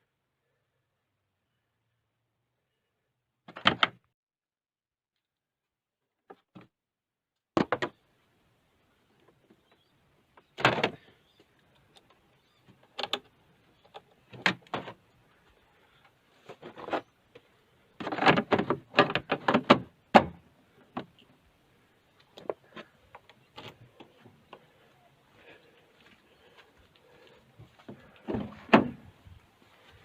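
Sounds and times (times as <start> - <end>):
knocks and clatters of handling: 16.0 - 21.3.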